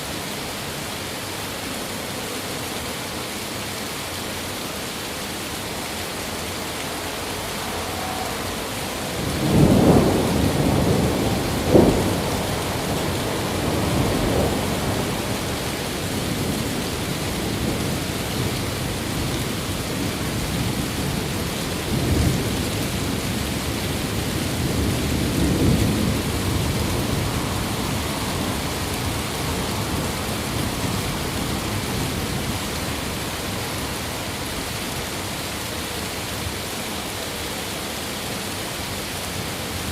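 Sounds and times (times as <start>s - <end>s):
steady rain: 0.0s - 39.9s
thunder rolling and cracking: 7.3s - 33.8s.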